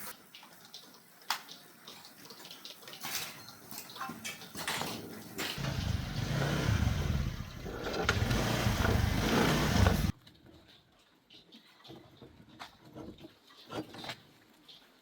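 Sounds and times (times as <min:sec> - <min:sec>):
motorcycle engine running roughly: 0:05.6 - 0:10.1.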